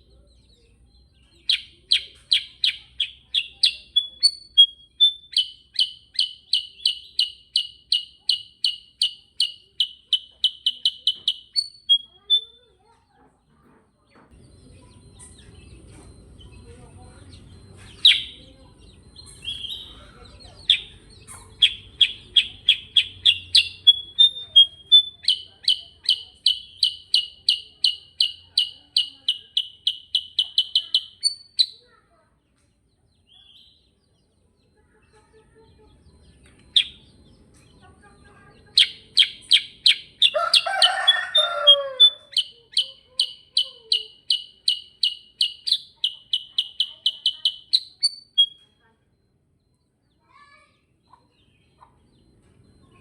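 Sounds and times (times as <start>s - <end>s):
bird chirping rapidly: 0.4s - 12.7s, 14.4s - 32.0s, 36.0s - 53.0s
low wavering bird call: 38.8s - 48.6s.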